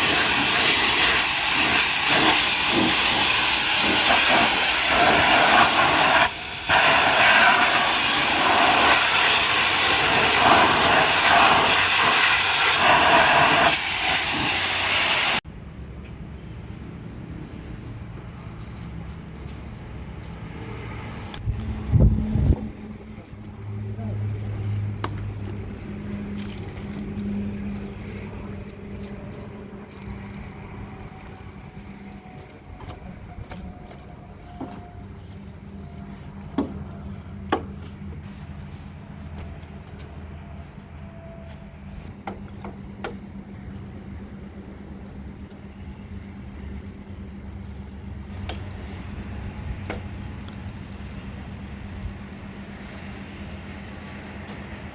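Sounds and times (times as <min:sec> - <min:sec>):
noisy hiss: 0:00.0 - 0:15.4
engine hum: 0:00.0 - 0:54.9.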